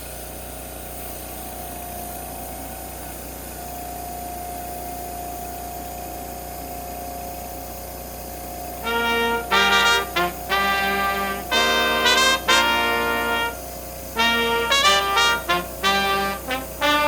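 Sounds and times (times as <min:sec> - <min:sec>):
pressure washer engine and pump droning: 0:00.0 - 0:17.0.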